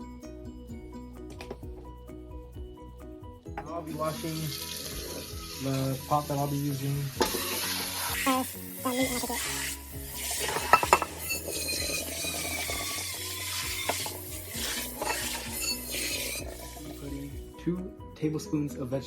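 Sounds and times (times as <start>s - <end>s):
background music: 0.0s - 19.0s
sizzling hiss: 3.9s - 17.4s
metal pot clinking and scraping: 7.2s - 17.4s.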